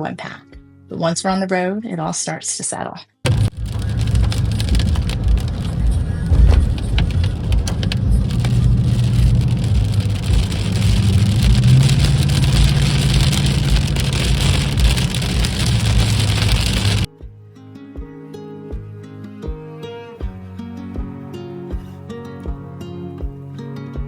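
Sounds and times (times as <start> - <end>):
truck engine drone: 3.3 - 17.1
tyre and road noise: 3.3 - 17.1.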